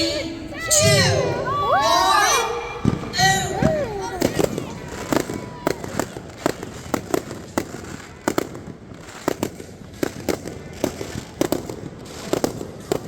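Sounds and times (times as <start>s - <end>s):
fireworks bursting with echoing bangs: 2.8s - 13.0s.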